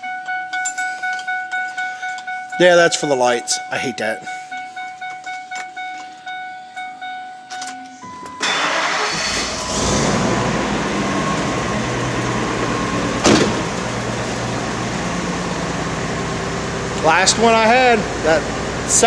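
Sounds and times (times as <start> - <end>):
truck engine starting and idling: 8.1 - 19.0.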